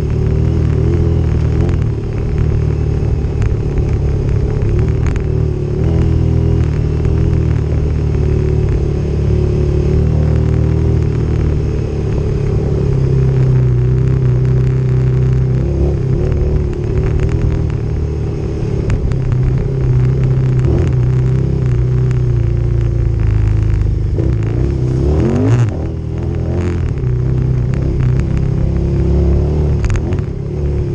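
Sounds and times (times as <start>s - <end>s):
motorcycle engine running: 0.0s - 30.9s.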